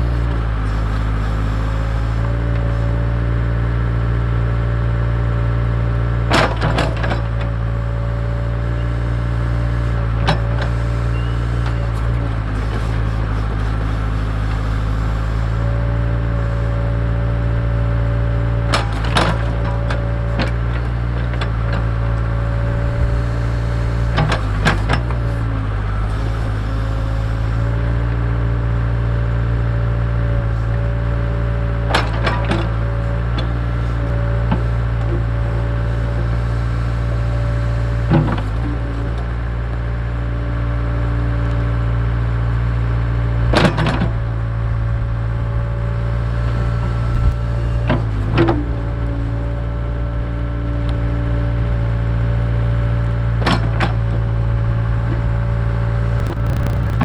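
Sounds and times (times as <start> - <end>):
diesel engine running: 0.0 - 29.6, 44.4 - 47.8, 55.8 - 57.0.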